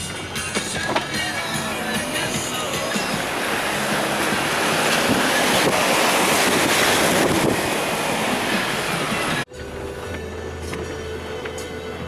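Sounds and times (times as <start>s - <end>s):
floodwater rushing: 0.0s - 10.1s
wind buffeting microphone: 0.7s - 9.4s.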